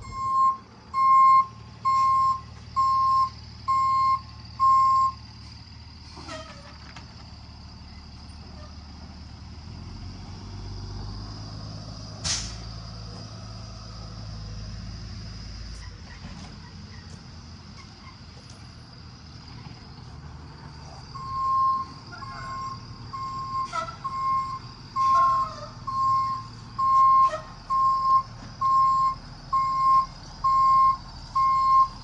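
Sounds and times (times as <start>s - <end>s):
truck reversing beeper: 0.0s - 5.5s, 20.9s - 32.0s
truck engine running: 0.0s - 32.0s
short sharp hiss: 12.2s - 12.7s.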